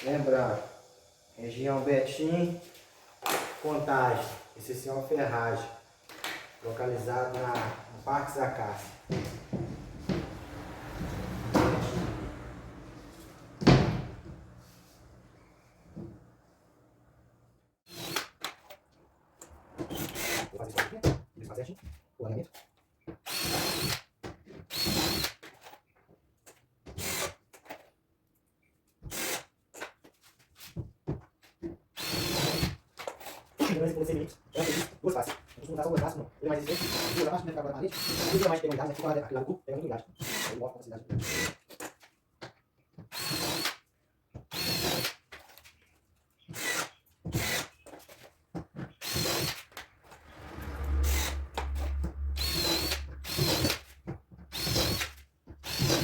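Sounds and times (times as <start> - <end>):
drill driving screws: 17.9 - 18.7, 19.9 - 20.5, 23.3 - 24.0, 24.7 - 25.5, 27.0 - 27.4, 29.1 - 29.5, 32.0 - 33.4, 36.7 - 37.3, 37.9 - 38.5, 40.2 - 40.6, 41.2 - 41.9, 43.1 - 43.8, 44.5 - 45.2, 46.5 - 47.8, 49.0 - 49.8, 51.0 - 56.0
low drone: 50.1 - 53.9.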